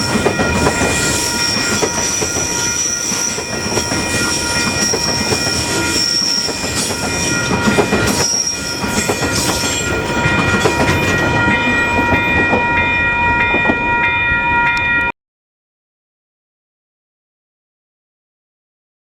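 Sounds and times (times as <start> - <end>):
train wheels clattering on rails: 0.0 - 13.9
level crossing bells ringing: 0.0 - 15.1.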